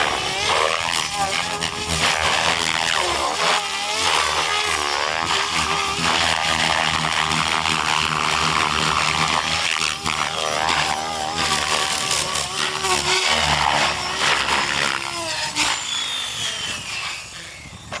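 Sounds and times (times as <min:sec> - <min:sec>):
rc helicopter motor whine: 0:00.0 - 0:18.0.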